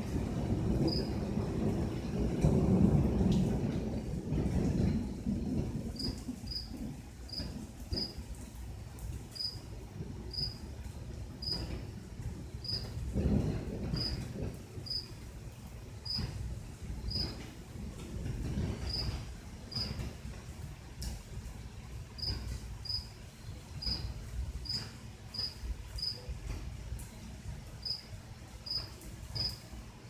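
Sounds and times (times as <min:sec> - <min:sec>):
distant thunder rumble: 0:00.0 - 0:29.9
cricket chirping: 0:00.9 - 0:01.2, 0:06.0 - 0:08.2, 0:09.4 - 0:09.6, 0:10.3 - 0:10.6, 0:11.4 - 0:11.7, 0:12.6 - 0:12.9, 0:14.0 - 0:14.2, 0:14.9 - 0:15.1, 0:16.0 - 0:16.3, 0:17.0 - 0:17.4, 0:18.9 - 0:19.1, 0:19.7 - 0:20.0, 0:22.2 - 0:23.1, 0:23.8 - 0:26.2, 0:27.8 - 0:28.0, 0:28.6 - 0:29.6.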